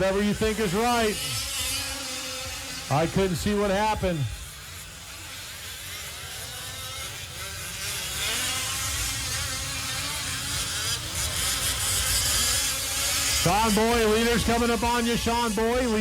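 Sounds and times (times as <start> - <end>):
small two-stroke engines buzzing: 0.0 - 16.0.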